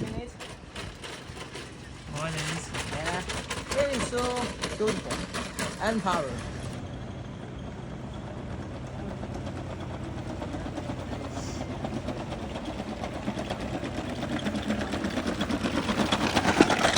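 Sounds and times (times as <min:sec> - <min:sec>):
robot joint motors humming: 0:00.0 - 0:07.0
rapid mechanical ticking: 0:00.0 - 0:16.9.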